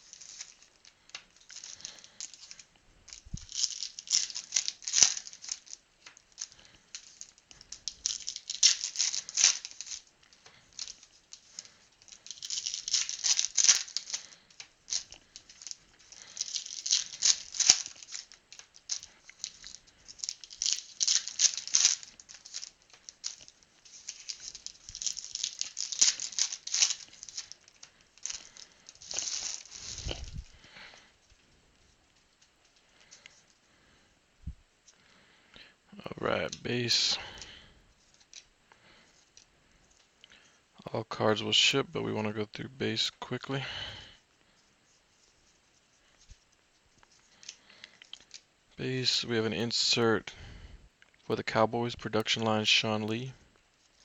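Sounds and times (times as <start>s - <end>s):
card pack wrappers tearing: 0.0s - 30.8s
cards being handled: 0.0s - 31.4s.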